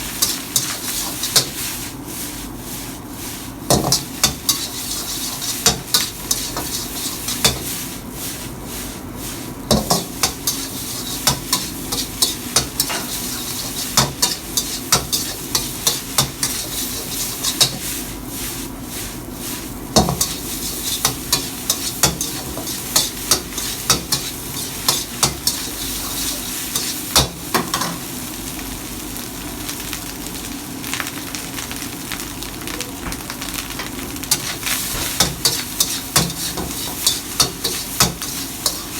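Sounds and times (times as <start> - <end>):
rice sizzling in a pan: 0.0 - 38.9
spatula knocking and scraping pan: 0.2 - 1.6, 3.7 - 7.9, 9.6 - 18.0, 19.9 - 28.0, 34.3 - 38.9.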